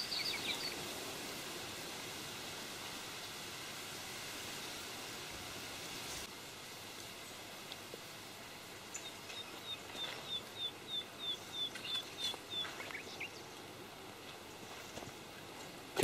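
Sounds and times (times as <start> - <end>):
small bird calling: 0.0 - 1.0, 8.8 - 13.6
soft background hiss: 0.0 - 16.0.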